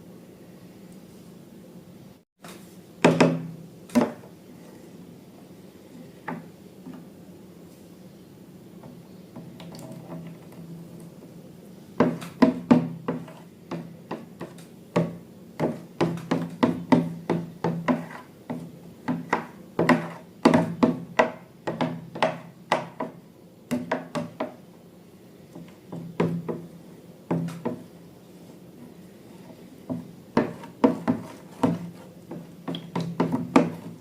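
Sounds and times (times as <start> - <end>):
sharp knocks and taps: 29.9 - 33.9.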